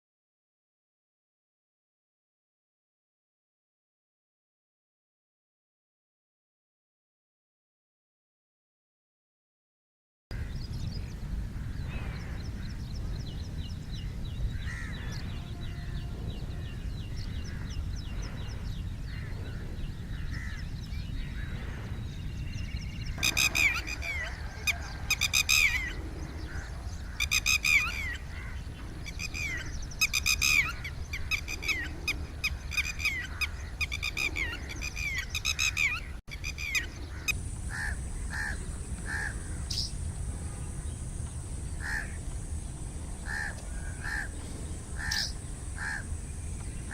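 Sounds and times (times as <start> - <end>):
harsh repeated bird calls: 23.0 - 42.4, 43.0 - 46.9
faint high bird trills: 23.2 - 41.0.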